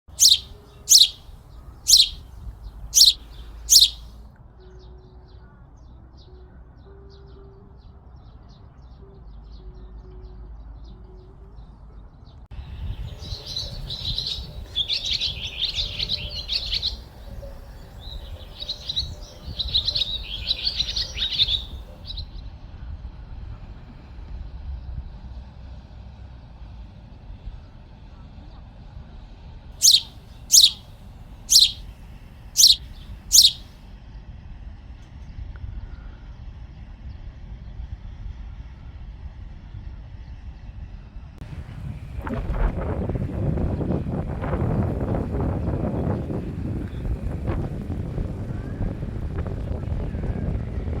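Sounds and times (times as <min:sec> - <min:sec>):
sharp downward-sweeping bird calls: 0:00.1 - 0:01.2, 0:01.9 - 0:02.2, 0:03.0 - 0:04.0, 0:13.0 - 0:21.8, 0:29.8 - 0:30.8, 0:31.5 - 0:31.8, 0:32.6 - 0:33.6
rapid bird twittering: 0:00.1 - 0:01.3, 0:01.9 - 0:02.3, 0:02.9 - 0:04.0, 0:12.8 - 0:22.2, 0:29.8 - 0:30.8, 0:31.5 - 0:31.8, 0:32.6 - 0:33.6
birds calling: 0:00.1 - 0:04.0, 0:12.8 - 0:22.2, 0:29.8 - 0:30.8, 0:31.5 - 0:31.8, 0:32.6 - 0:33.6
low wind rumble: 0:00.1 - 0:04.1, 0:09.7 - 0:25.8, 0:29.8 - 0:33.6, 0:37.5 - 0:51.0.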